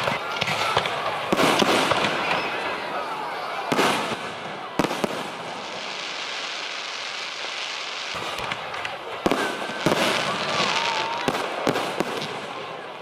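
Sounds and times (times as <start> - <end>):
fireworks bangs: 0.0 - 13.0
fireworks hiss: 3.7 - 12.5.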